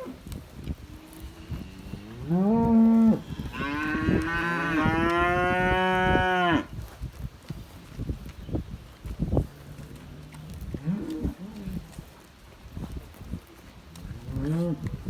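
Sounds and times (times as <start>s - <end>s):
cows mooing: 1.1s - 6.7s.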